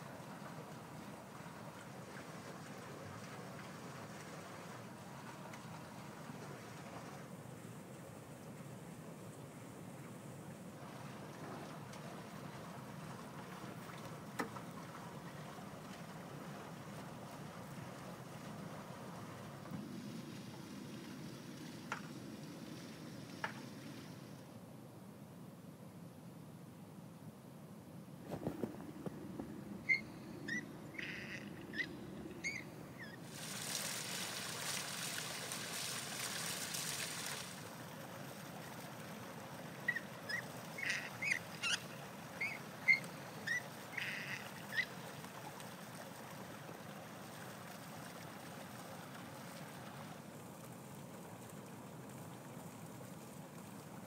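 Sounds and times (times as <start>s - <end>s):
steady hiss: 15.7s - 39.6s
bird chirping calls: 29.4s - 33.2s, 39.9s - 44.9s.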